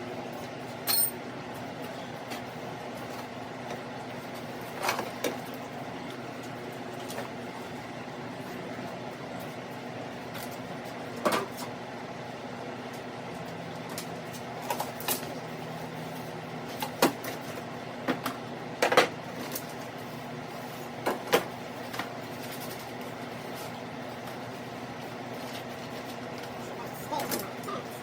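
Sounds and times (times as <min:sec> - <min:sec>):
swamp cooler humming: 0:00.0 - 0:28.0.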